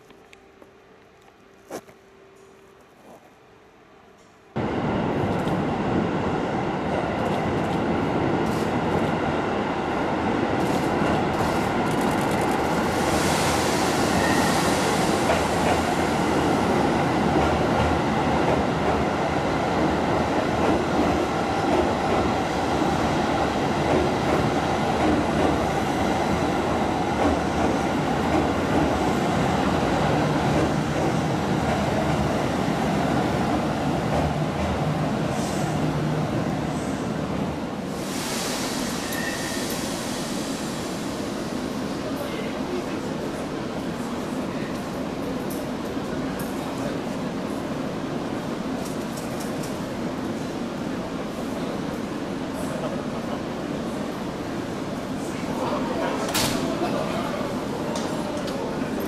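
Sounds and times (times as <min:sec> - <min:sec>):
electric train rumbling: 0:00.0 - 0:59.0
hiss: 0:12.8 - 0:16.7, 0:37.8 - 0:42.2.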